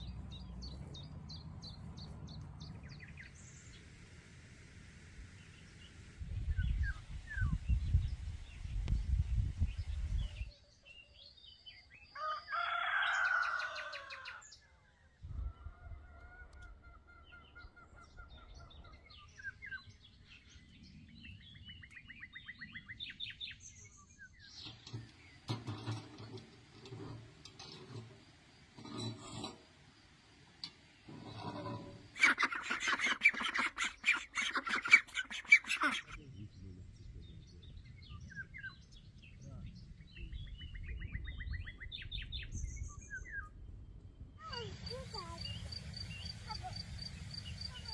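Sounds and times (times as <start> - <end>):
small birds chirping: 0.0 - 3.9, 16.4 - 28.1, 28.8 - 47.9
poultry calling: 31.2 - 36.2.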